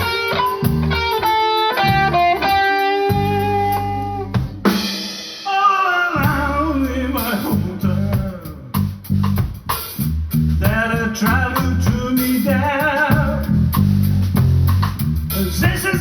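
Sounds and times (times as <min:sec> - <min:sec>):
live band playing: 0:00.0 - 0:16.0
person singing: 0:05.4 - 0:08.9, 0:10.6 - 0:13.6, 0:15.3 - 0:16.0.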